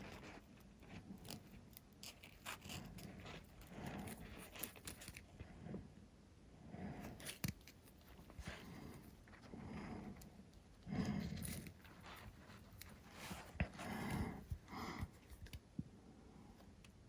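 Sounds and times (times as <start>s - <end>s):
scrapes and rustles: 0.0s - 5.9s, 6.9s - 15.8s
hands handling foam model: 7.0s - 15.9s.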